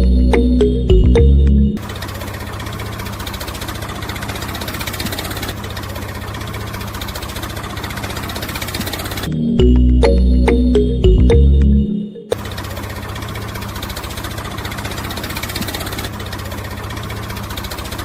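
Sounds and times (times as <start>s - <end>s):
background music: 0.0s - 1.8s, 9.3s - 12.4s
small motor rattling: 1.8s - 9.3s, 12.4s - 18.0s.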